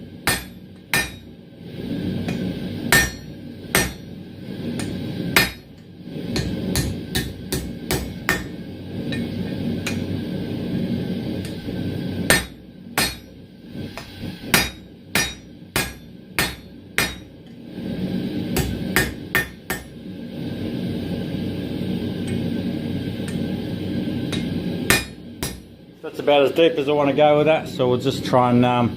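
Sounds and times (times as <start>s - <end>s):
hammer striking steel on anvil: 0.2s - 1.3s, 2.3s - 4.1s, 4.8s - 5.8s, 6.4s - 10.1s, 12.3s - 13.4s, 14.0s - 17.4s, 18.6s - 19.9s, 24.3s - 25.7s.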